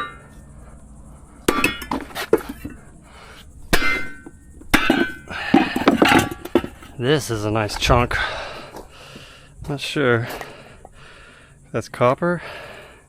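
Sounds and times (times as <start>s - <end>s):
scrap metal clanking: 0.0s - 0.5s, 1.4s - 8.9s.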